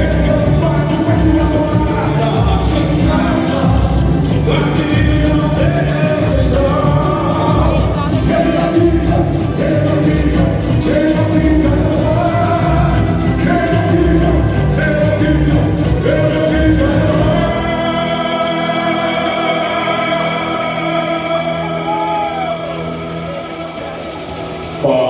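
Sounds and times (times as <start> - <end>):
heavy low percussion: 0.0 - 18.1
person singing: 0.0 - 25.0.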